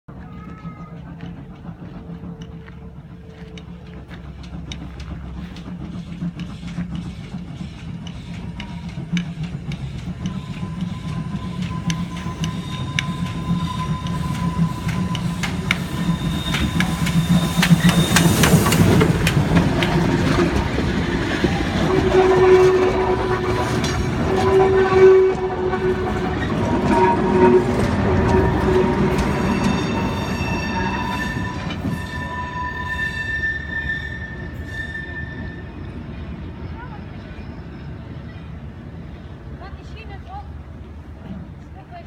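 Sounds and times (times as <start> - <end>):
wheels clicking over rail joints: 0.1 - 33.5.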